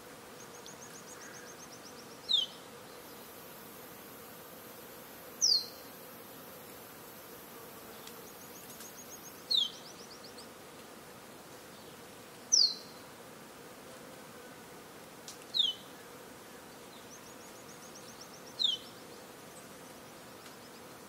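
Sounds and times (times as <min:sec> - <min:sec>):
insects buzzing: 0:00.0 - 0:21.0
high insect whine: 0:07.0 - 0:10.3.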